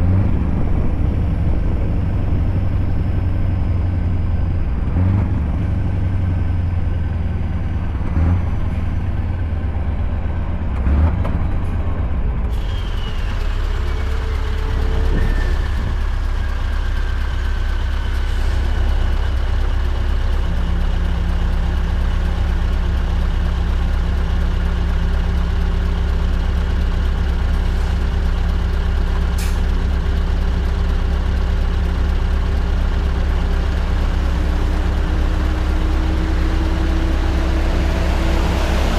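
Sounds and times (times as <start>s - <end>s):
truck diesel engine droning: 0.0s - 38.9s.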